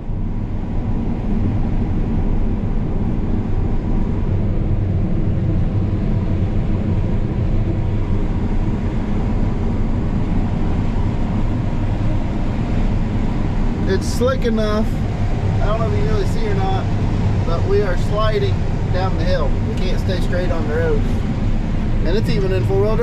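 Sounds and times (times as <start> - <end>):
combine harvester running: 0.0 - 23.0.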